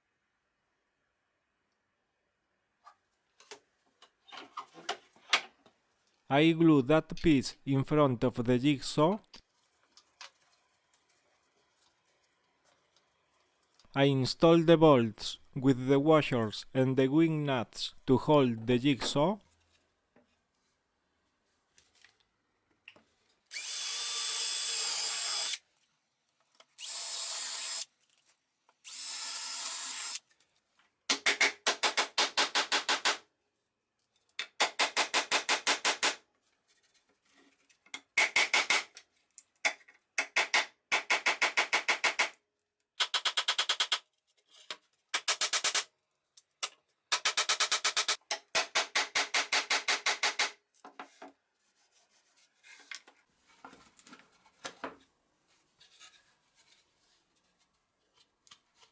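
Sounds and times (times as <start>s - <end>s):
fast rasping tool work: 23.5s - 25.6s
power drill running: 23.5s - 25.6s.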